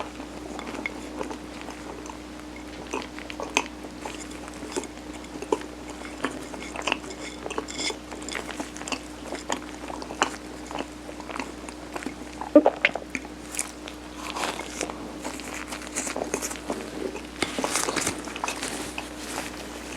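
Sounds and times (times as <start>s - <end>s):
close chewing: 0.0s - 12.5s, 13.1s - 19.9s
faint steady hum: 0.0s - 19.9s
wet mouth clicks and smacks: 12.4s - 13.2s.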